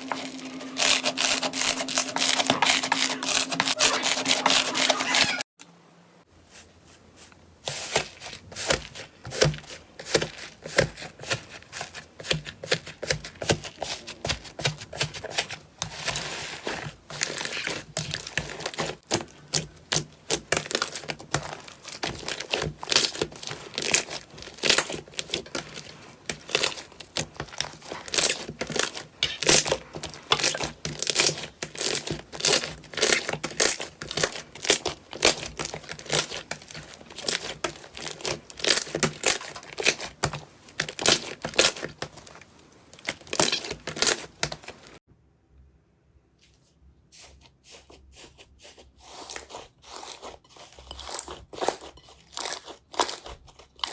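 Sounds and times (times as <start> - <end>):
slime crackling and popping: 17.2 - 42.4, 43.0 - 44.9.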